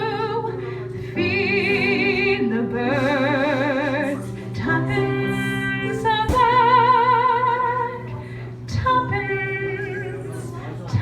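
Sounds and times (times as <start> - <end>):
woman singing a ballad: 0.0 - 11.0.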